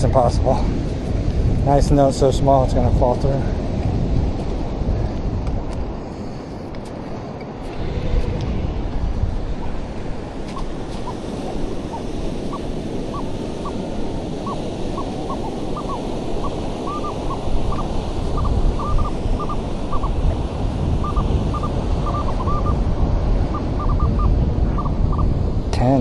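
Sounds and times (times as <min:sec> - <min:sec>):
surf: 0:00.0 - 0:26.0
wind on microphone: 0:00.0 - 0:26.0
metal detector beeps: 0:14.4 - 0:20.1, 0:21.0 - 0:22.8.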